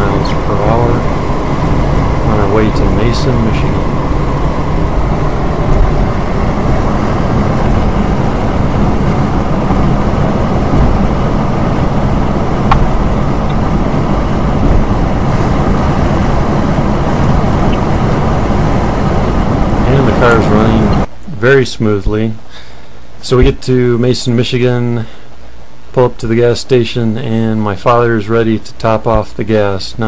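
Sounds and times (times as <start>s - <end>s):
car engine cruising: 0.0s - 21.1s
road noise: 0.0s - 21.2s.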